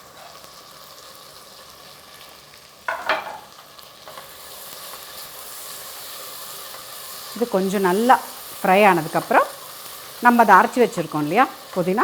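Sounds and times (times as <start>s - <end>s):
onions sizzling in a pan: 0.0s - 12.0s
utensil clattering against pan: 2.9s - 3.5s.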